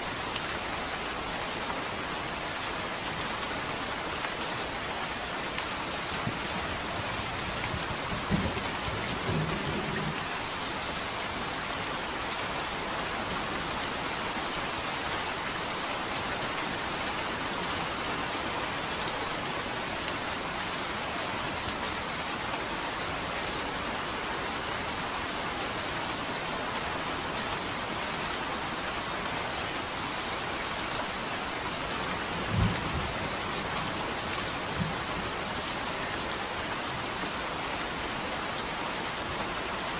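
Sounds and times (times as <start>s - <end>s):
steady rain falling: 0.0s - 39.9s
low thunder rumbles: 6.3s - 10.4s.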